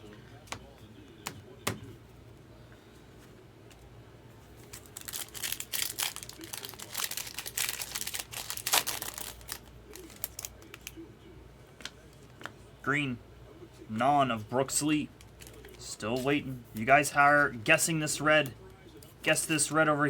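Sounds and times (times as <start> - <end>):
foil wrapper crinkling: 4.6 - 11.0.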